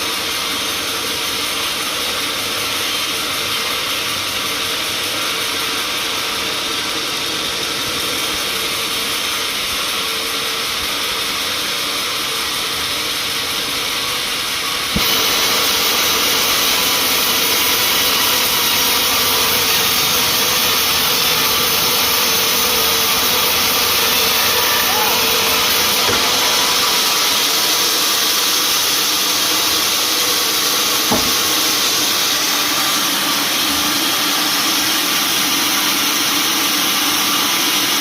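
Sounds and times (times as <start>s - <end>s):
sawmill machinery running: 0.0s - 38.0s.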